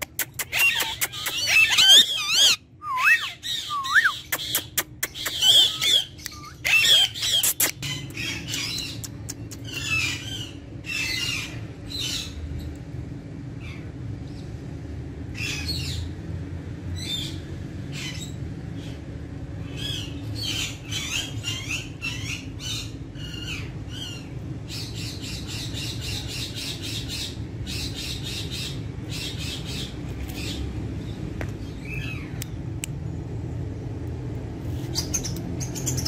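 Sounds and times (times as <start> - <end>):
steady low hum: 0.0 - 36.0
parakeet squawking: 0.2 - 12.4.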